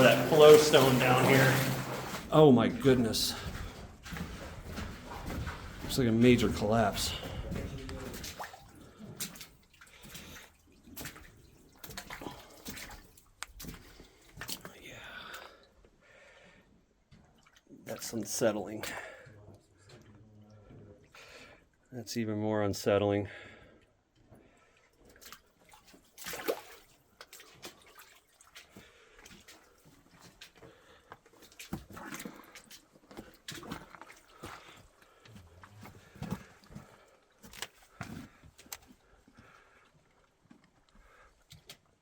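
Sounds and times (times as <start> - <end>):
footsteps splashing through water: 0.0 - 14.8, 25.0 - 39.6
water dripping: 0.0 - 15.8, 17.1 - 21.8.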